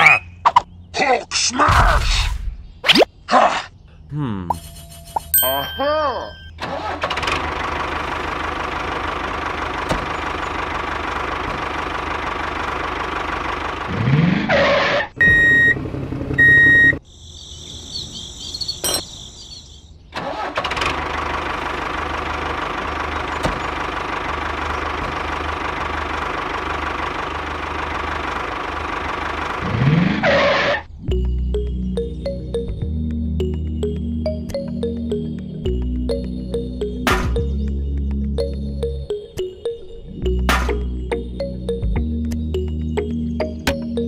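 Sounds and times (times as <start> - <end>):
tractor engine running: 6.5 - 17.0, 20.2 - 44.0.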